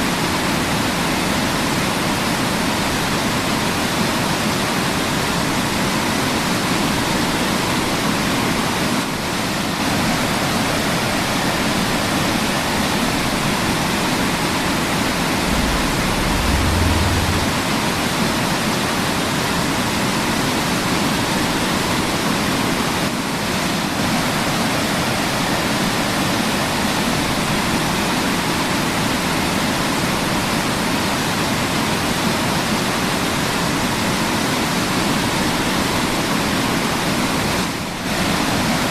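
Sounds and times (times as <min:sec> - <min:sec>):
brief low rumble: 0:15.2 - 0:18.1.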